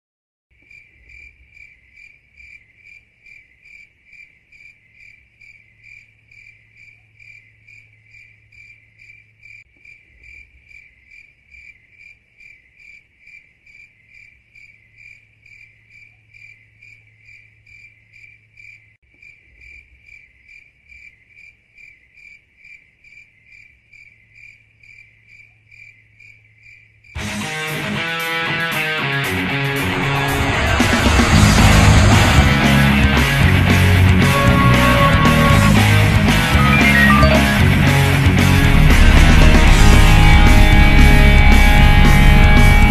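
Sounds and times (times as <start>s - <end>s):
cricket chirping: 0.6s - 27.2s.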